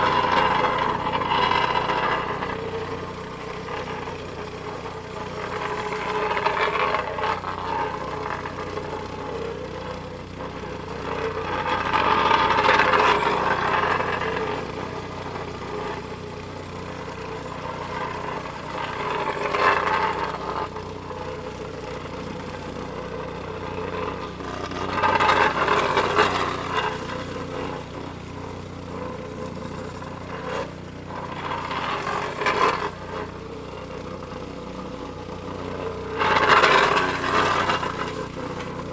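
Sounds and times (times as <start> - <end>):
plate compactor engine drone: 0.0 - 38.9.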